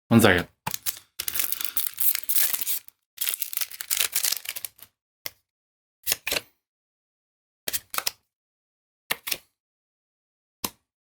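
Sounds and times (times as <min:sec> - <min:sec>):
foil wrapper tearing and crinkling: 0:00.7 - 0:04.9.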